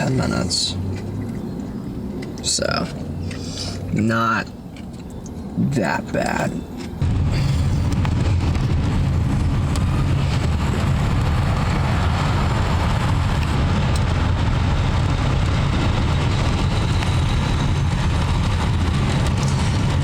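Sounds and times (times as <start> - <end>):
road and engine rumble: 0.0 - 20.0.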